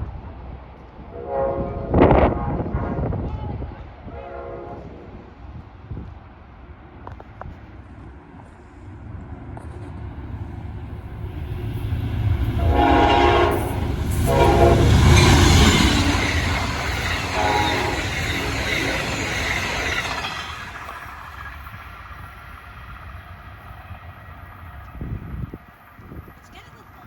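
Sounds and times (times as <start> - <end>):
train passing: 0.0 - 27.0
train horn blasts: 1.1 - 3.0, 4.0 - 5.1, 12.5 - 19.4.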